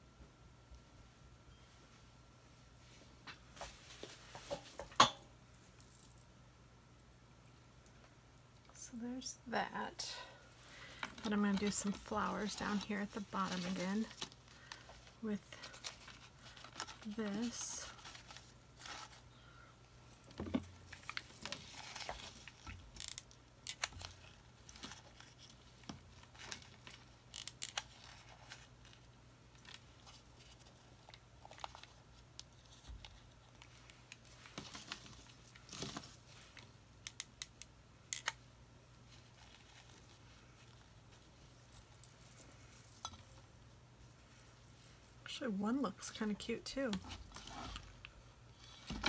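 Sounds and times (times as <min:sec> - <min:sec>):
artificial flowers rustling: 0:09.6 - 0:23.1, 0:39.0 - 0:49.0.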